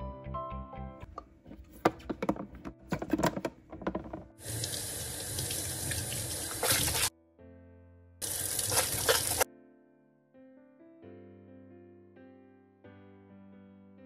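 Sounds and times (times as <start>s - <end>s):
clattering knocks: 1.0s - 4.4s
tap running into a sink: 1.1s - 7.1s.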